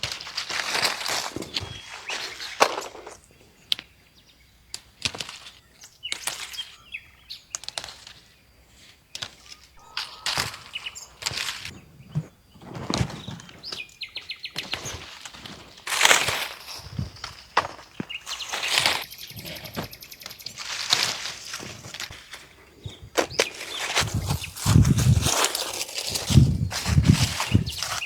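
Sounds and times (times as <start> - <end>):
rustling and crunching: 0.0 - 3.9, 4.7 - 28.0
high bird chirps: 9.4 - 12.3, 16.8 - 21.6.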